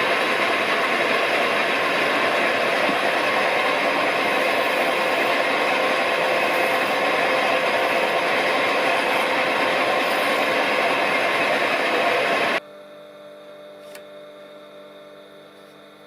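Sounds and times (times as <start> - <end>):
lathe running: 0.0 - 12.6.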